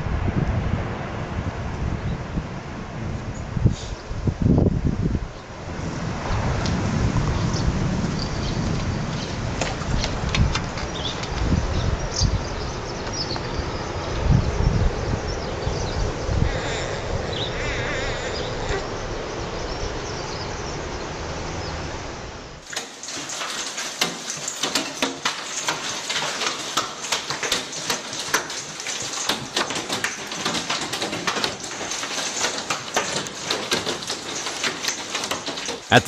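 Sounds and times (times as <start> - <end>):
hailstones clattering: 22.6 - 35.9.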